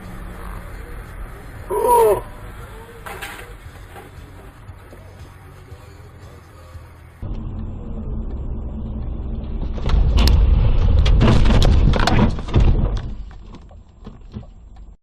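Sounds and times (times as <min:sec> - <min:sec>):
car rumbling on road: 0:00.0 - 0:15.0
car collision bangs and knocks: 0:09.7 - 0:14.5.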